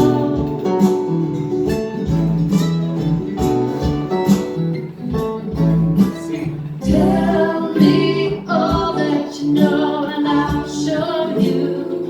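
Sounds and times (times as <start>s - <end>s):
acoustic guitar strumming: 0.0s - 12.0s
person singing folk song: 6.0s - 12.0s.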